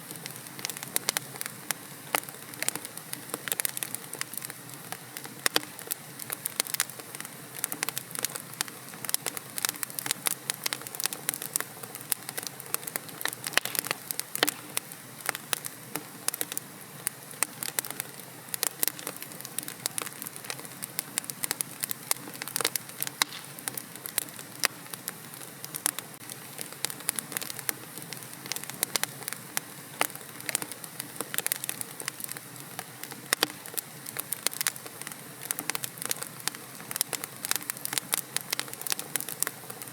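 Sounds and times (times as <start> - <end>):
fire crackling: 0.0 - 39.9.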